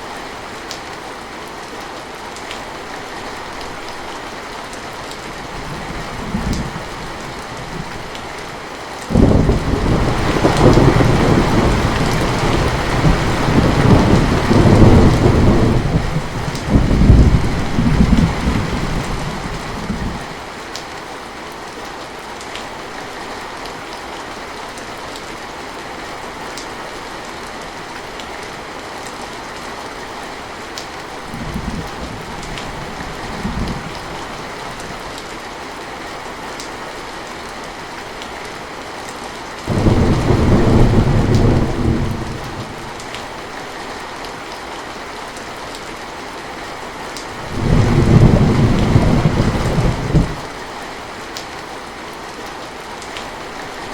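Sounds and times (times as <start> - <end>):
heavy rain: 0.0 - 53.9
thunder rumbling: 9.1 - 20.3, 39.7 - 43.0, 47.4 - 50.5.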